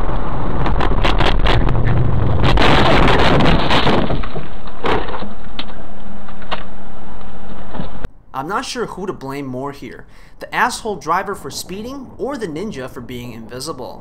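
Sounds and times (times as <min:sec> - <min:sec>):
low hum: 0:00.0 - 0:08.4
knocks and clatter of impact: 0:02.5 - 0:05.8.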